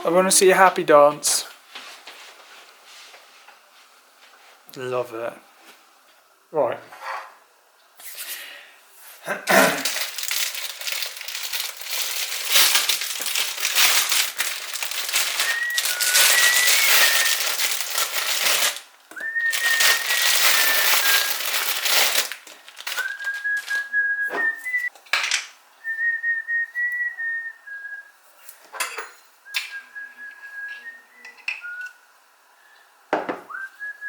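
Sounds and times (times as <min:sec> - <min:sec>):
loud crinkling and rustling: 0:09.8 - 0:24.9
person whistling: 0:15.0 - 0:17.9, 0:19.2 - 0:21.6, 0:22.9 - 0:24.9, 0:29.5 - 0:32.0, 0:33.5 - 0:34.0.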